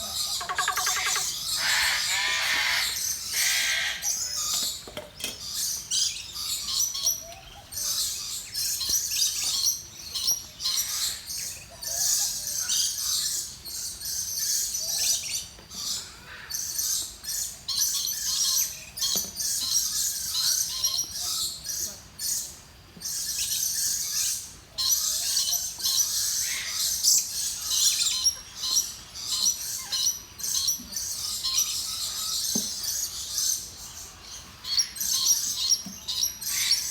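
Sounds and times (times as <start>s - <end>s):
parakeets chattering and squawking: 0.0s - 4.5s.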